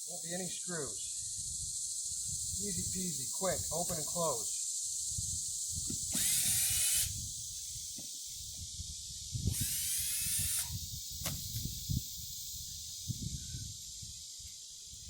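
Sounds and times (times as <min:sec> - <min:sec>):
crickets chirring: 0:00.0 - 0:15.0
cordless drill whining: 0:06.1 - 0:07.2, 0:09.5 - 0:11.4.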